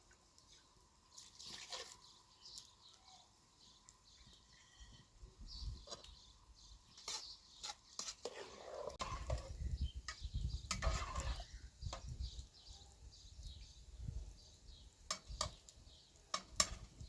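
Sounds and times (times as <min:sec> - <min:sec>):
farmyard birds calling: 0:01.4 - 0:11.7.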